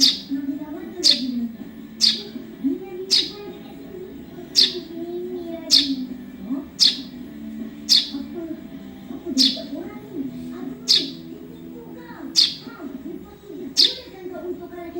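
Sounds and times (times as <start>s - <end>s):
sparrow chirps sweeping downward: 0.0s - 14.9s.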